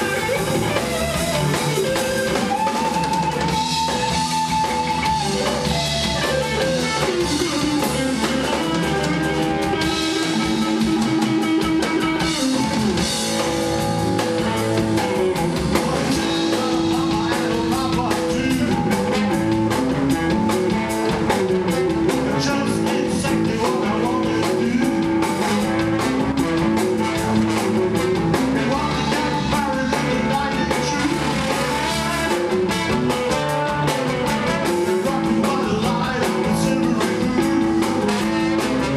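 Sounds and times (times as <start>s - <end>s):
drum kit beat: 0.0s - 38.9s
guitar: 0.0s - 38.9s
person singing: 15.6s - 19.4s, 22.1s - 25.6s, 28.3s - 32.9s, 33.8s - 38.9s.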